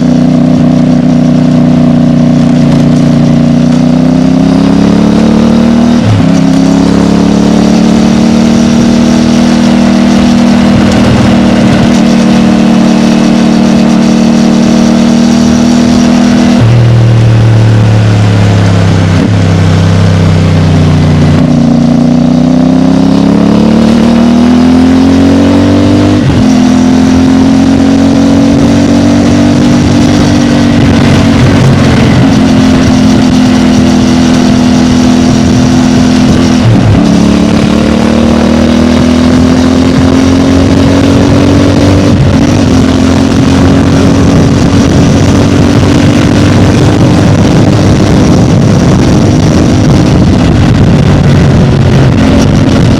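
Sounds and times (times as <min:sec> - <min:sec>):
motorcycle engine accelerating: 0:00.0 - 0:52.9
motorcycle gear changes: 0:09.0 - 0:13.7.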